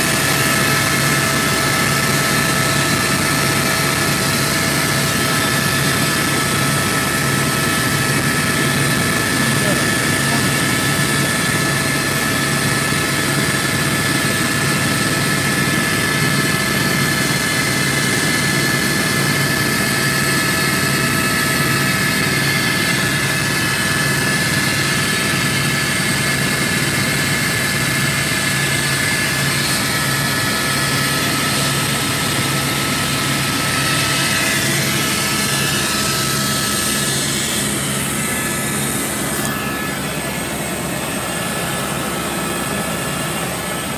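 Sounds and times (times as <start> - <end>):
helicopter turbine and rotor noise: 0.0 - 43.9
high whine: 0.0 - 43.9.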